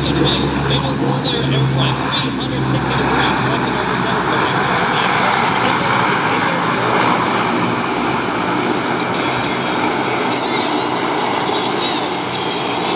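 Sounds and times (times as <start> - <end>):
jets passing overhead: 0.0 - 12.9.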